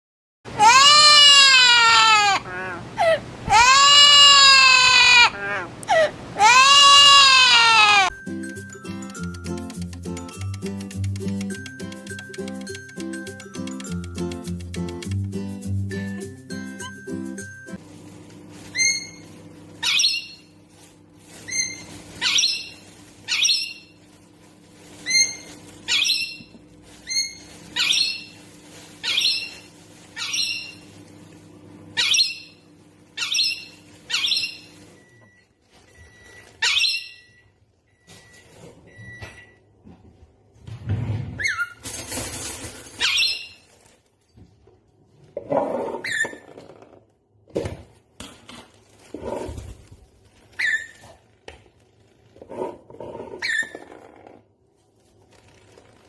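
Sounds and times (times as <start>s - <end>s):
parrot calling: 0.6s - 2.8s, 3.5s - 8.1s, 18.7s - 19.2s, 19.8s - 20.4s, 21.5s - 23.9s, 25.0s - 28.4s, 29.0s - 30.8s, 32.0s - 32.6s, 33.2s - 34.8s, 36.6s - 37.4s, 50.5s - 51.2s.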